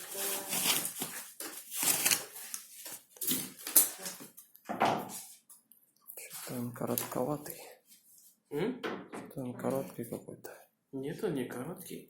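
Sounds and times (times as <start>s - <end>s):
packaging rustling: 0.0s - 4.5s.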